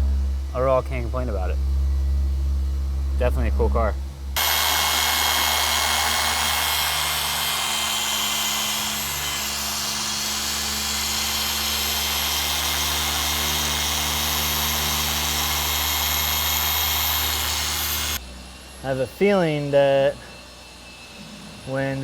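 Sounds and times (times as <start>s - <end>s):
machine polisher whirring: 4.4s - 18.2s.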